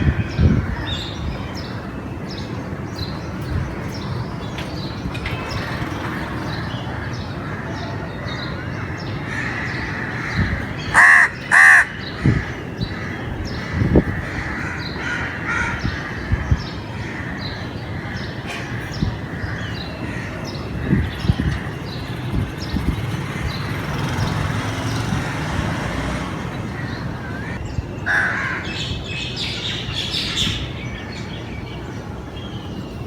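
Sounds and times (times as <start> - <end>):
crow cawing: 9.3 - 17.4, 26.8 - 28.8.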